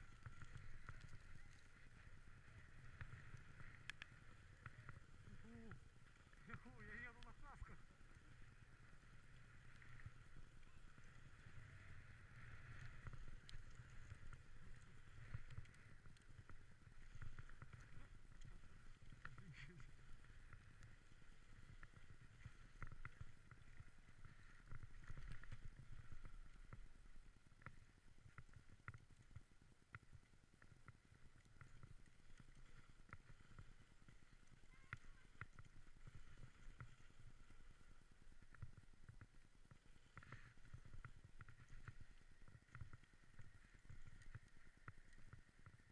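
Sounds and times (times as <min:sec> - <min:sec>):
small clicks: 0:00.0 - 0:02.0, 0:02.6 - 0:05.6
light irregular clicks: 0:00.0 - 0:08.4, 0:09.0 - 0:45.9
sled runners swishing on snow: 0:00.0 - 0:27.4.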